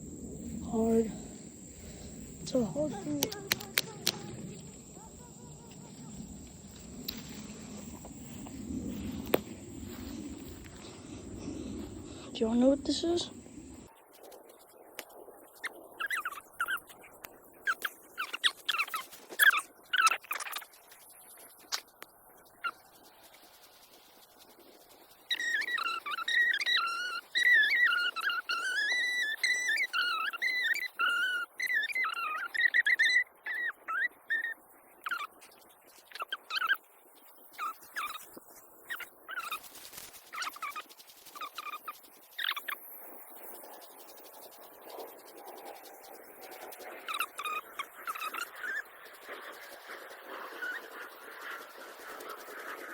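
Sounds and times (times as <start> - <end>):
faint outdoor background noise: 0.0 - 52.9
light clicks: 3.1 - 4.7
animal chirping calls: 15.7 - 20.6, 25.3 - 39.7, 40.3 - 42.9, 47.1 - 48.9, 50.5 - 51.6
bird warbling whistles: 25.3 - 35.3.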